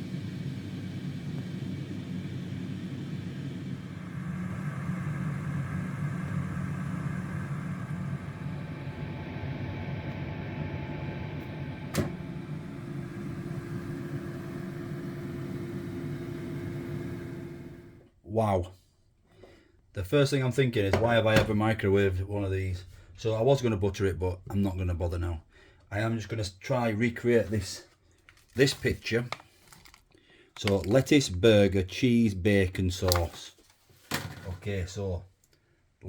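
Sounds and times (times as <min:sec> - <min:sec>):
air fryer fan hum: 0:00.0 - 0:18.1.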